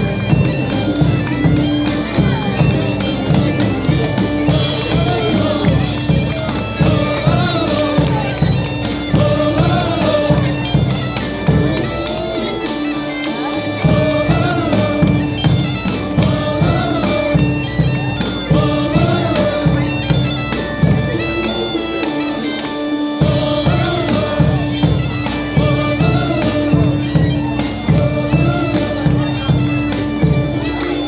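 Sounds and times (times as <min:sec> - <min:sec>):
bagpipes playing folk melody: 0:00.0 - 0:31.0
drum beating steady rhythm: 0:00.0 - 0:31.0.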